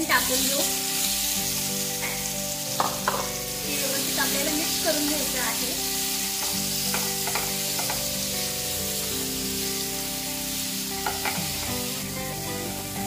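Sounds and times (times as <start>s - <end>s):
food sizzling in hot oil: 0.0s - 13.0s
spatula knocking against pan: 2.8s - 3.4s, 6.4s - 8.1s, 11.0s - 11.5s.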